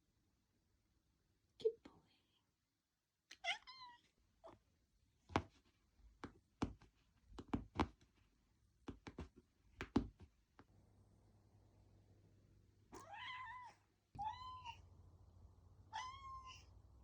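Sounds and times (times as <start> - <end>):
irregular short knocks and taps: 5.3 - 8.1, 8.8 - 10.7.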